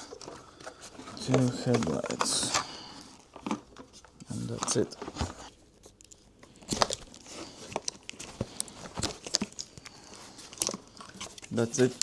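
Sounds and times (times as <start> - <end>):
hard plastic parts clicking and knocking: 0.0 - 2.7.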